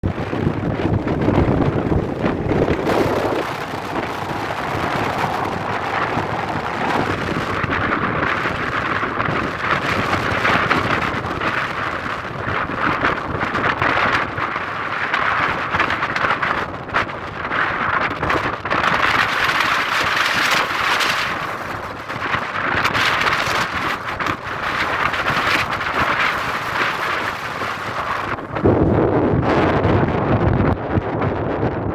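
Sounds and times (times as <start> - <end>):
jet engines on takeoff: 0.0 - 12.8
wind buffeting microphone: 0.0 - 31.9.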